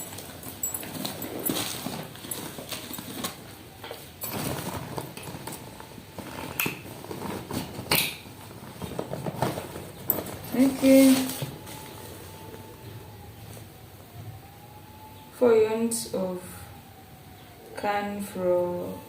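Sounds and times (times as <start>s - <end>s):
packaging rustling: 0.0s - 13.7s.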